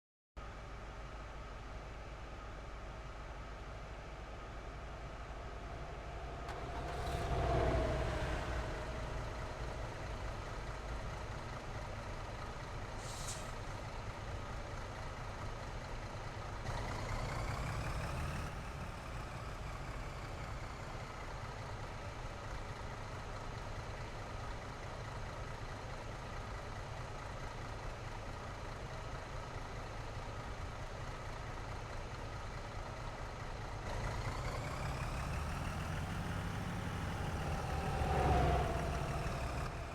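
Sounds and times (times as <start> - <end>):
truck engines and tyres rumbling: 0.4 - 39.9
truck passing by: 4.2 - 15.2, 16.4 - 21.6, 33.8 - 39.9
brief hiss: 13.0 - 13.6.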